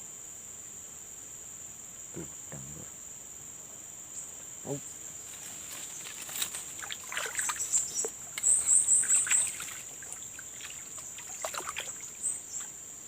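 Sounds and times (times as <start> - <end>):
high-pitched insect drone: 1.0 - 13.0
water splashing and trickling: 5.4 - 12.8
bird chirping: 5.8 - 12.8.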